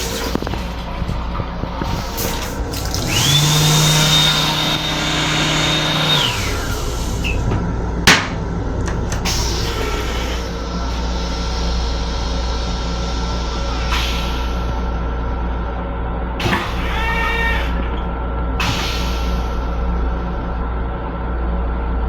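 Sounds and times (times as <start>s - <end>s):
rumble of moving train: 0.0s - 22.0s
electric motor whine: 2.7s - 7.2s.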